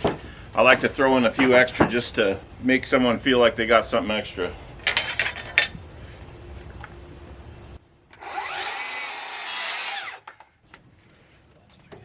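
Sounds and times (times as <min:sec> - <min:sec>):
power saw cutting board: 0:08.2 - 0:10.3.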